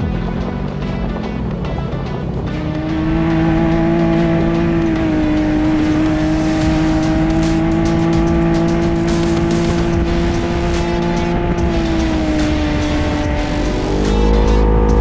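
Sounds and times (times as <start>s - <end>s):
utv engine running: 0.0s - 15.0s
sharp clicks: 3.9s - 15.0s.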